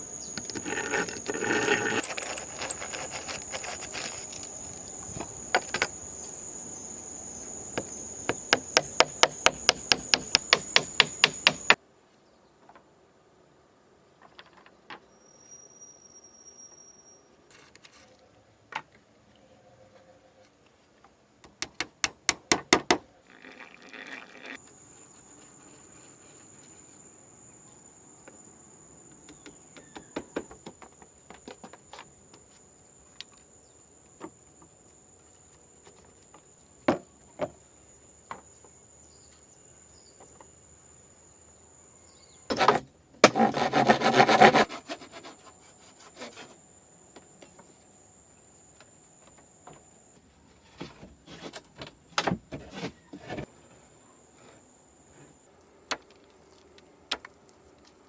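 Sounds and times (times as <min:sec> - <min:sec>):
wood scraping: 0:00.0 - 0:06.4, 0:07.6 - 0:11.8, 0:42.5 - 0:46.6, 0:50.8 - 0:51.8
knocks and clicks on wood: 0:07.8 - 0:11.8.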